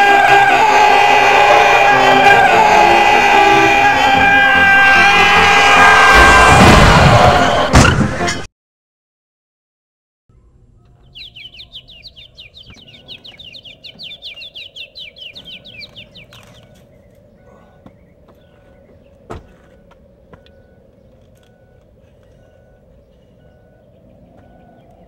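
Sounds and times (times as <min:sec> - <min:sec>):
bird trilling: 0:10.8 - 0:19.1.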